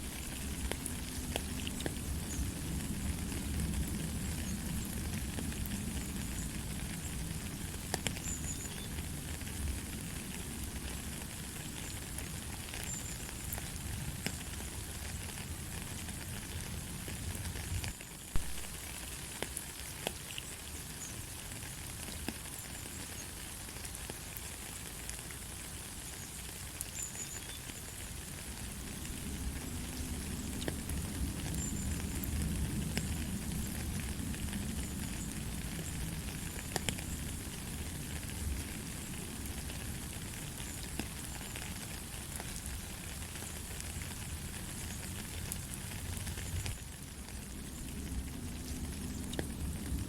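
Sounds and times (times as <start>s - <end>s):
light rain hiss: 0.0s - 50.0s
sharp drip ticks: 34.3s - 37.3s.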